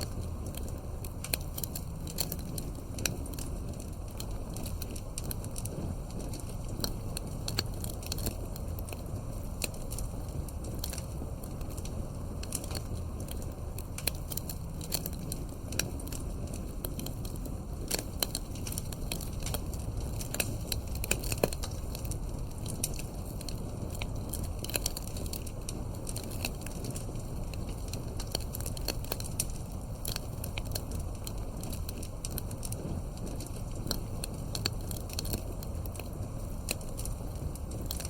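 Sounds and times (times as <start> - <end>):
campfire crackling and popping: 0.0 - 38.0.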